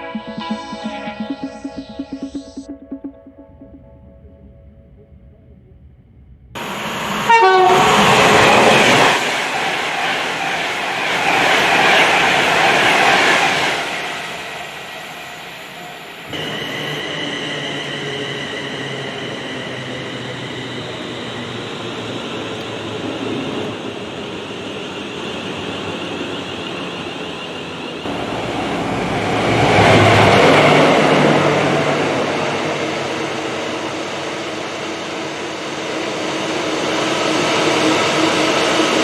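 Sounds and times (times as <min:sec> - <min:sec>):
train horn blast: 0:06.6 - 0:09.1
train wheel and rail noise: 0:06.6 - 0:39.0.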